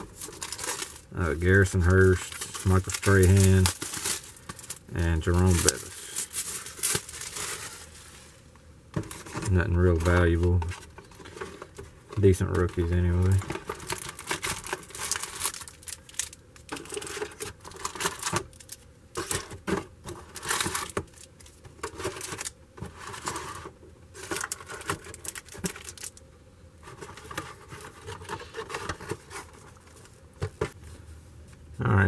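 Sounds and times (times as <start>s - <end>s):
plastic wrap crinkling: 0.0s - 8.4s, 9.0s - 23.6s, 24.2s - 26.2s.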